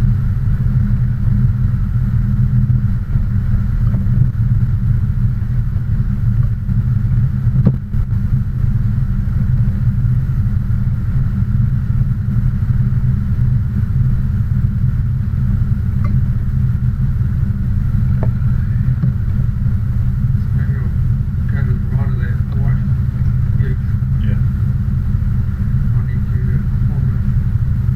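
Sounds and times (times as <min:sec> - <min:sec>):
car engine and road rumble: 0:00.0 - 0:27.9.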